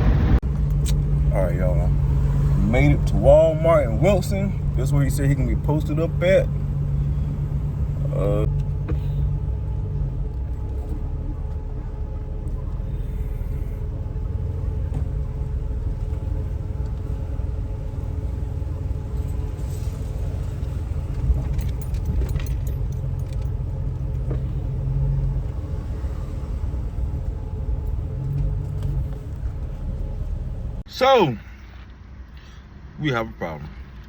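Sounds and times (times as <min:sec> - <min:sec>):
engine and road rumble: 0:00.0 - 0:34.0
light clicks and jingles: 0:19.0 - 0:25.6.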